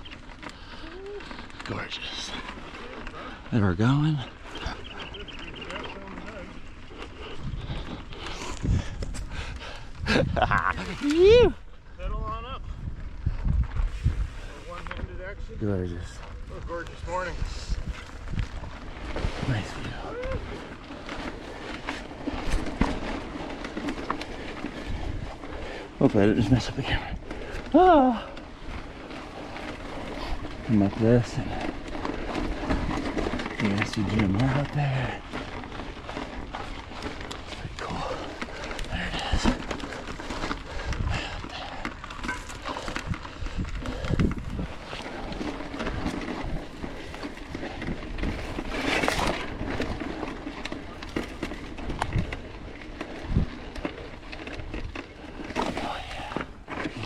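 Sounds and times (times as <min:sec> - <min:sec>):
bike clicks and rattles: 0:00.0 - 0:57.0
tyres on dirt trail: 0:00.0 - 0:57.0
wind noise: 0:06.6 - 0:21.6, 0:22.2 - 0:57.0.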